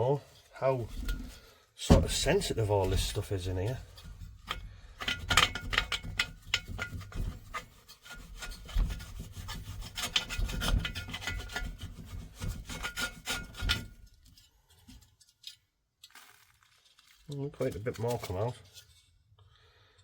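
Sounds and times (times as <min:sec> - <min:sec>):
tool scraping metal fins: 0:00.4 - 0:14.5.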